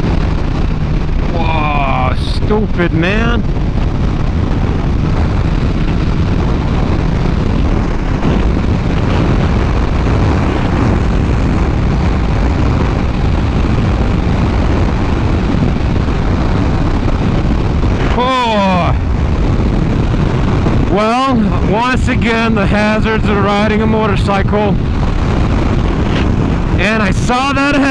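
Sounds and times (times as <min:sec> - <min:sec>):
motorcycle engine running: 0:00.0 - 0:21.8
wind on microphone: 0:00.0 - 0:27.9.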